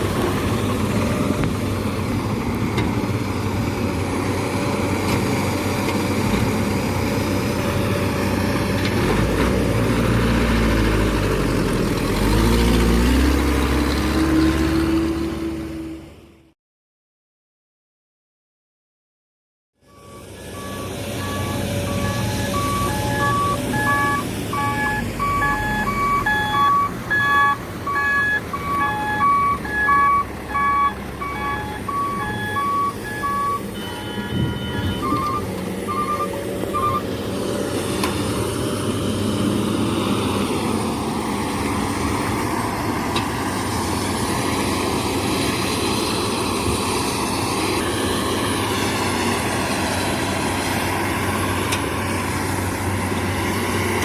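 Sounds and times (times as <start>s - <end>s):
diesel engines running: 0.0s - 16.5s, 19.8s - 54.0s
reversing alarm beeping: 19.9s - 37.0s.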